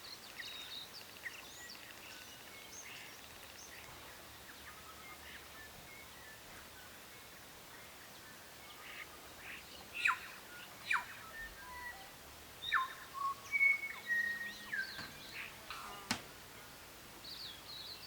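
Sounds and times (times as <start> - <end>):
faint steady hiss: 0.0 - 18.0
birds whistling: 10.0 - 18.0.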